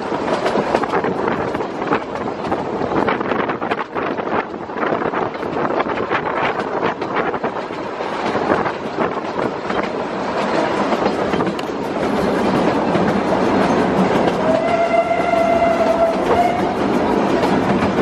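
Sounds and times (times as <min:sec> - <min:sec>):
train wheels clattering on rails: 0:00.0 - 0:18.0
steam whistle: 0:14.4 - 0:16.8.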